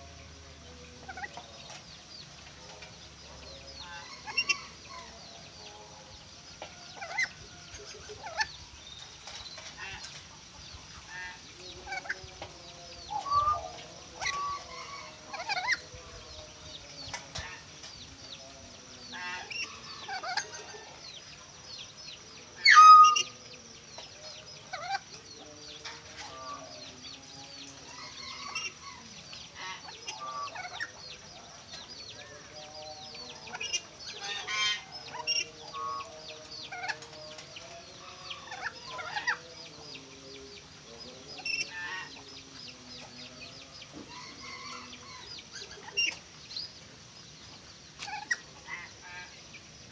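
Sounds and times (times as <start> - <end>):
birds chirping and squawking: 0.0 - 49.9
loud bird shriek: 22.6 - 23.3.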